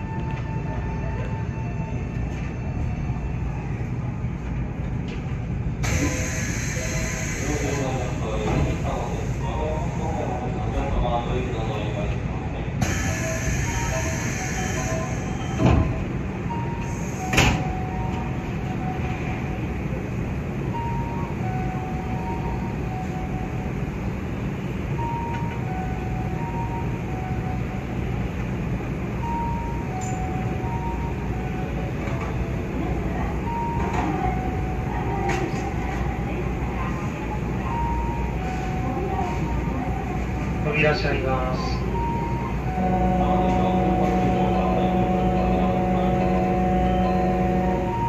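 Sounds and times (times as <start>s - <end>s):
train wheels rumbling on rail: 0.0s - 48.0s
faint two-pitch tones: 41.6s - 48.0s.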